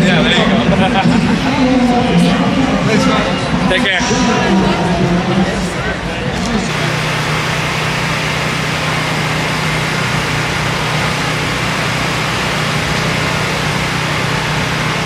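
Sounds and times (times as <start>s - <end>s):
car engine idling: 6.6s - 15.0s.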